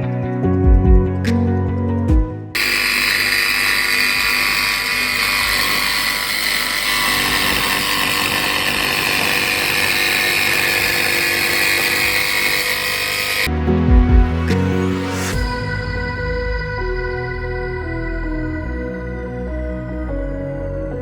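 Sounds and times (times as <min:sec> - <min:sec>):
power tool whirring: 0:02.6 - 0:13.5.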